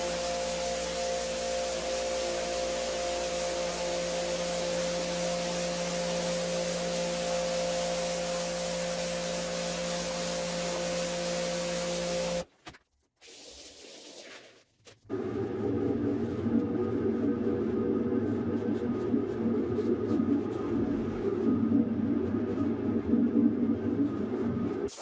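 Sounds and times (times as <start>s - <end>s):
carpet cleaning machine running: 0.0s - 12.4s.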